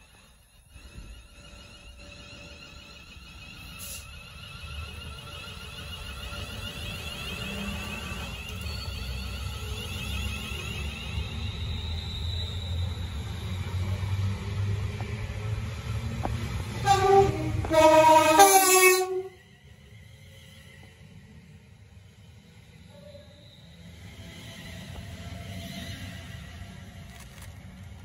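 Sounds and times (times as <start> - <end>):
train wheel rumble: 0.0 - 28.0
train horn blast: 16.7 - 19.4.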